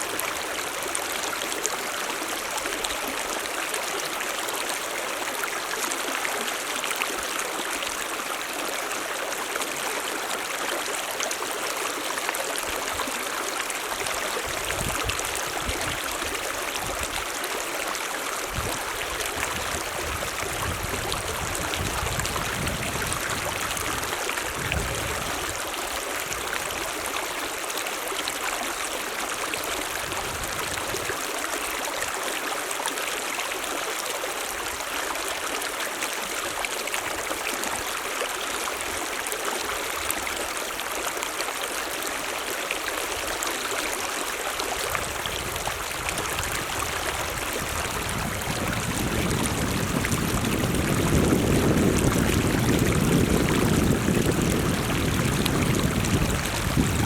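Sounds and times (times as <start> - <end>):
stream water rushing and gurgling: 0.0 - 57.0.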